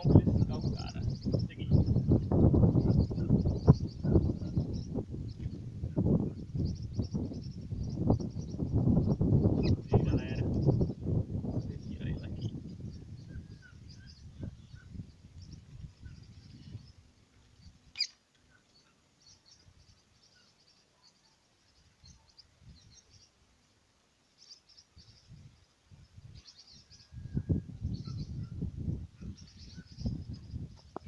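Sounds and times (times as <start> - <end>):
faint high bird chirps: 11.6 - 23.4, 24.4 - 31.0.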